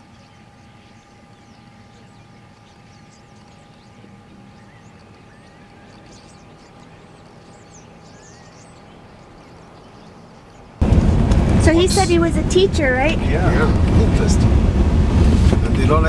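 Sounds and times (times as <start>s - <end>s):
small birds chirping: 0.0s - 10.8s
faint steady whine: 0.0s - 16.0s
steady low rumble: 0.0s - 16.0s.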